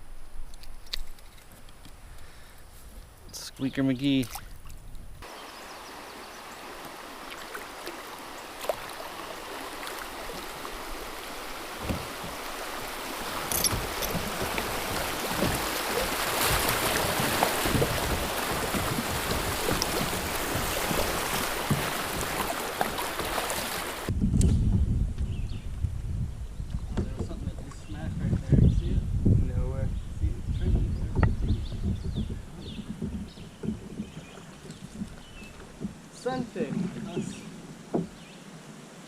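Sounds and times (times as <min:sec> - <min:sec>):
river water rushing: 0:05.2 - 0:24.1
light knocks against boat: 0:11.8 - 0:12.4, 0:26.9 - 0:27.8, 0:30.7 - 0:36.0, 0:36.7 - 0:38.2.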